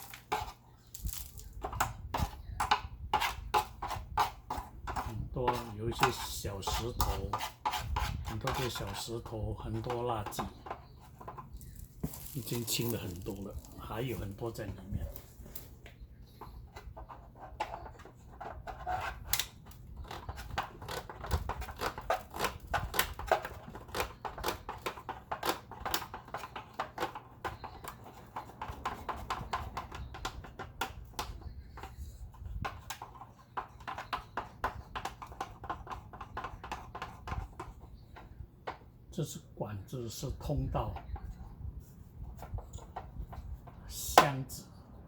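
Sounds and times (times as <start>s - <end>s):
tool scraping plastic tube: 0.0s - 15.7s, 16.3s - 38.8s.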